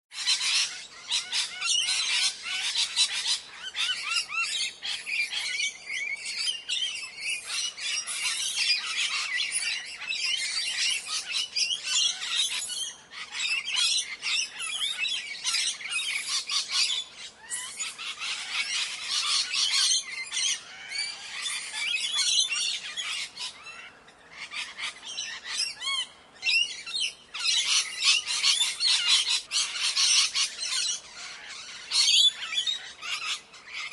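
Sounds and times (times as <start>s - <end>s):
parrots squawking: 0.2s - 33.9s.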